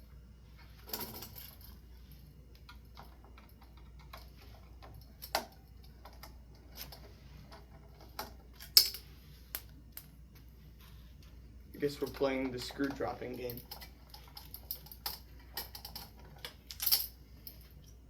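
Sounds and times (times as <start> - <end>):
tools clicking and tapping: 2.5 - 10.1, 11.9 - 18.0.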